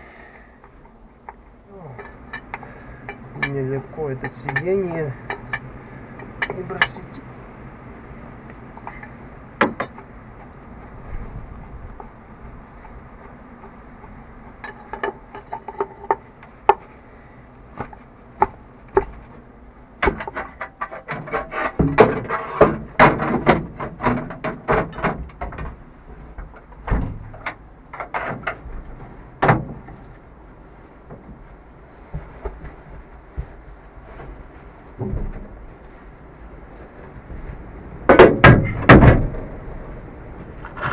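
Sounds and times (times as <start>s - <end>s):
hard objects knocking and clattering: 8.8s - 10.6s.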